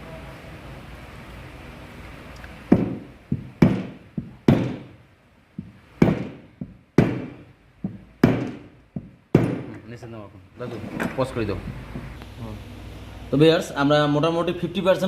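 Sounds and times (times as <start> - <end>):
hammer knocking on metal: 2.7 - 5.0, 5.6 - 9.9.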